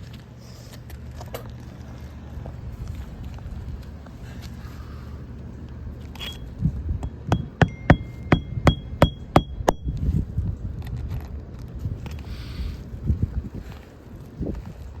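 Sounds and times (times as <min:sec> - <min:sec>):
hammer striking nail: 0:07.0 - 0:10.0
wind rumble on microphone: 0:09.6 - 0:15.0.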